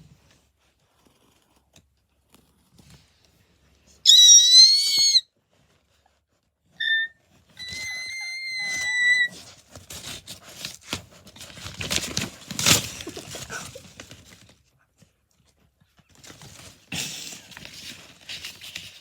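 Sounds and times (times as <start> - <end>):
high steady whistle: 4.1 - 5.2, 6.8 - 9.3.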